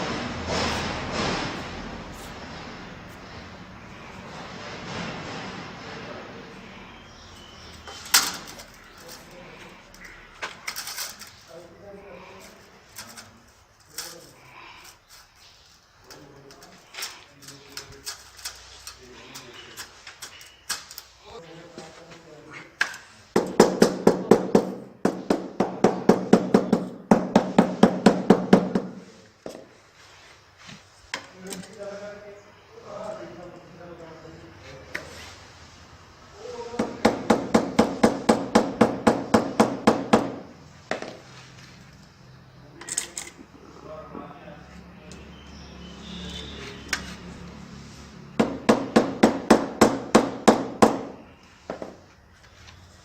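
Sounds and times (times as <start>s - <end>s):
rapid knocking on tile: 23.4s - 29.6s, 36.8s - 41.2s, 48.4s - 52.0s
hammer tapping: 36.8s - 41.1s, 48.4s - 51.9s.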